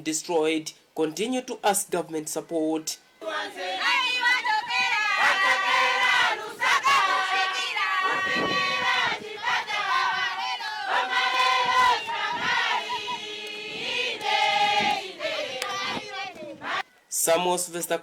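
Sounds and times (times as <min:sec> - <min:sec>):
group of voices singing: 0:03.2 - 0:16.9.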